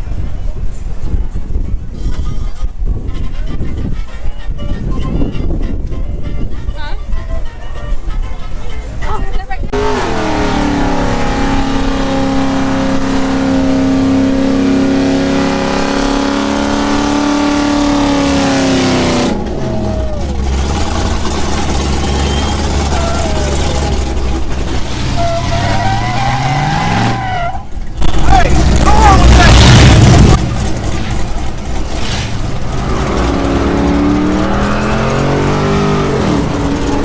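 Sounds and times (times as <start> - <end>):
vehicle engine revving: 9.7 - 37.0.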